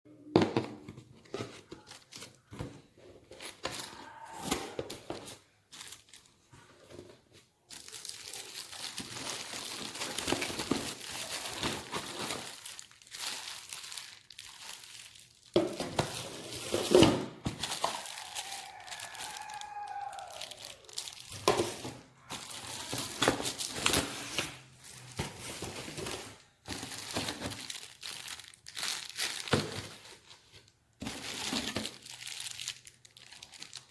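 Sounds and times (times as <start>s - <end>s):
packaging crinkling and rustling: 1.0s - 33.9s
packaging tearing: 7.8s - 30.2s, 31.0s - 33.9s.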